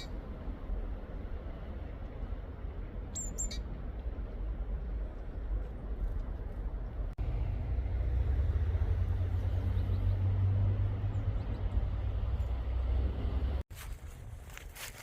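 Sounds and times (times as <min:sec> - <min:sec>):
low rumble: 0:00.0 - 0:14.7.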